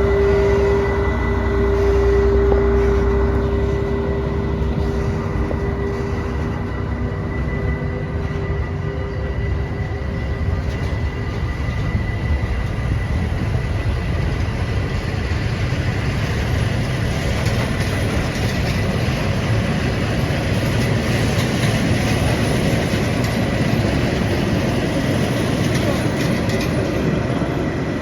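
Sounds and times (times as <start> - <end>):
steady high tone: 0.0 - 11.8
locomotive engine rumble: 0.0 - 28.0
train wheels on rails: 0.0 - 28.0.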